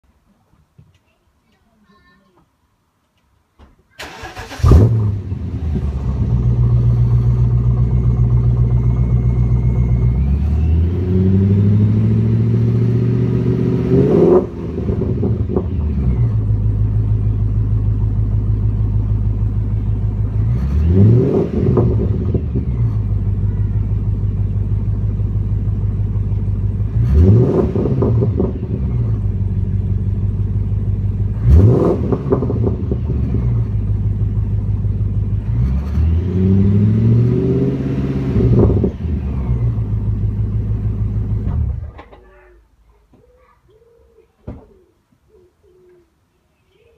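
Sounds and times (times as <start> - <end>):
car engine idling and revving: 4.0 - 42.2.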